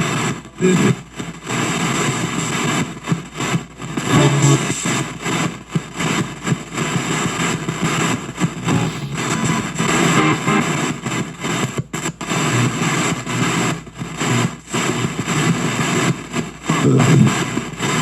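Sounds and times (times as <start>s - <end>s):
distorted radio static fragments: 8.6s - 10.7s.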